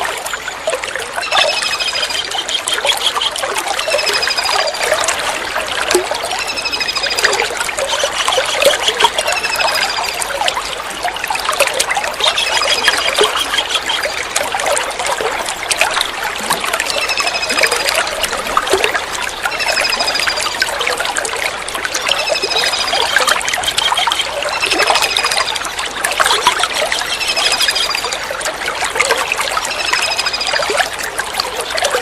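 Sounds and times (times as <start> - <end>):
trickle of running water: 0.0 - 32.0
kingfisher trilling calls: 12.2 - 14.3, 22.0 - 25.5.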